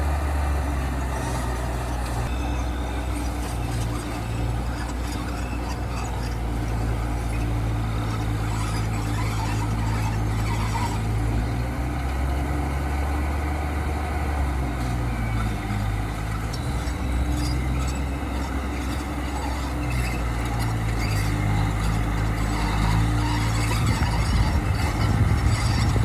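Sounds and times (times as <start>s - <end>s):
heavy machine diesel engine: 0.0s - 26.0s
squeaks and knocks: 1.2s - 12.4s, 16.5s - 26.0s.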